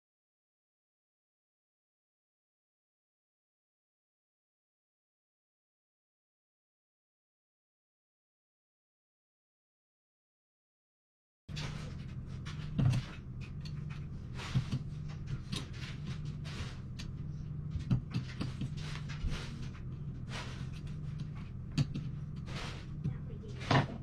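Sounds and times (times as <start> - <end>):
steady low hum: 11.5 - 24.0
small clicks and knocks: 17.8 - 24.0.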